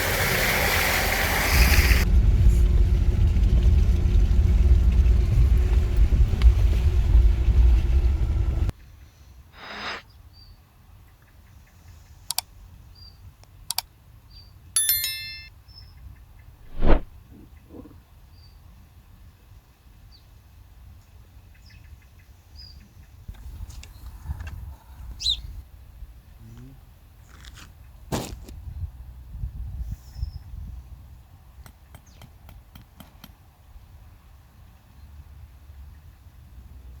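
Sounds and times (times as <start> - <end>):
ringing metallic clink: 14.8 - 15.5.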